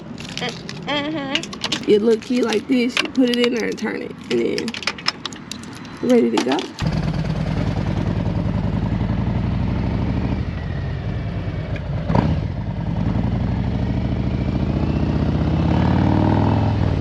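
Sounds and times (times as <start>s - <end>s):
motorcycle engine idling: 6.8s - 14.1s.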